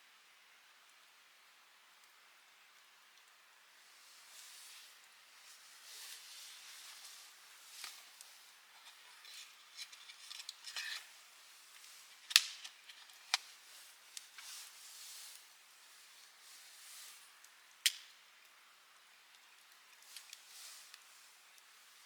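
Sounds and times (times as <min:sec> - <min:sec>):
campfire crackling and popping: 0:10.3 - 0:14.5, 0:17.4 - 0:18.5.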